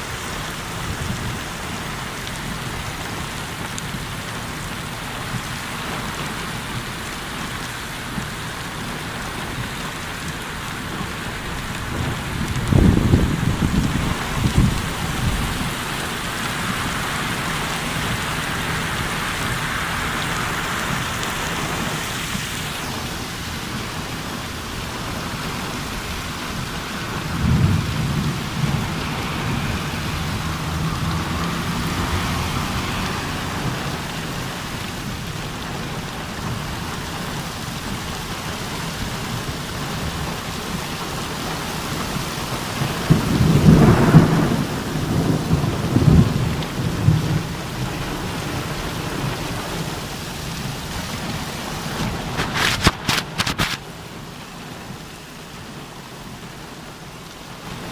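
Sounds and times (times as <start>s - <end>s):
rain falling: 0.0s - 57.9s
thunder rumbling: 8.9s - 41.8s, 42.4s - 53.0s.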